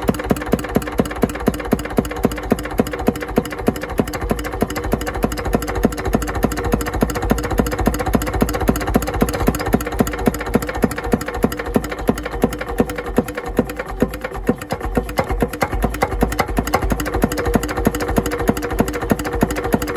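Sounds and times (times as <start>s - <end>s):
diesel engine knocking steadily: 0.0s - 19.9s.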